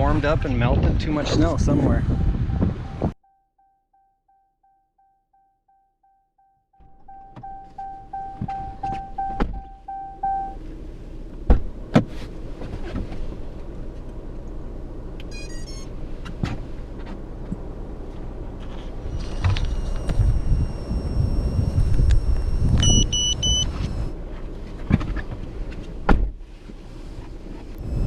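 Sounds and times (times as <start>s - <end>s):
wind buffeting microphone: 0.0s - 3.2s, 19.2s - 24.1s
electronic beeps: 6.8s - 10.6s, 15.3s - 15.9s, 19.1s - 24.1s.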